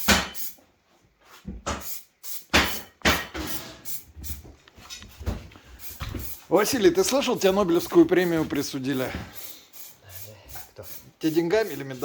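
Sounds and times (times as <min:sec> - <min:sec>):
hard object knocks and clatters: 0:02.5 - 0:03.8.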